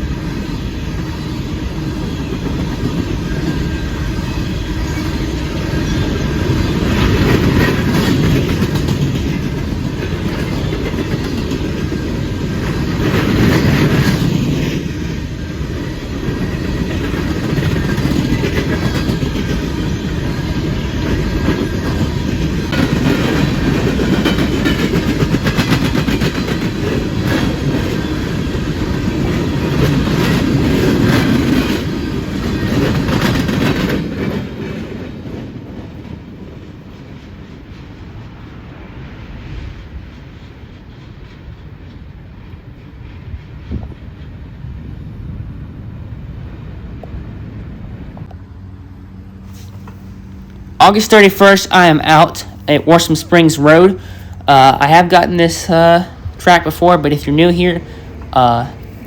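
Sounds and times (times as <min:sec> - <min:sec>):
train wheels clickety-clack: 0:00.0 - 0:38.7, 0:39.8 - 0:44.8
train rumble: 0:00.0 - 0:59.0.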